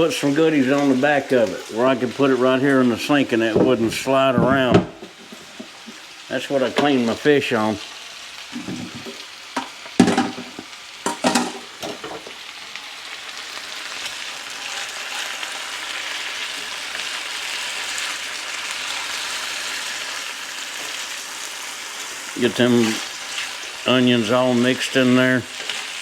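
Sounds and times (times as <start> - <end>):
potatoes and onions sizzling in oil: 0.0 - 26.0
knocks and scrapes in pan: 3.5 - 6.0, 8.6 - 12.3.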